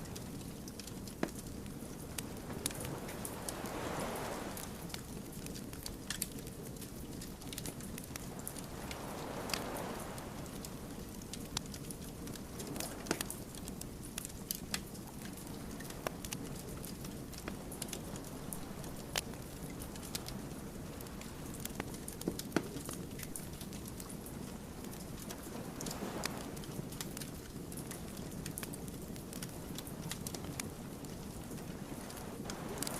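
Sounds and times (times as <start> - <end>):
wood fire crackling: 0.0 - 32.9
soft hissing: 1.8 - 5.2, 8.1 - 11.6.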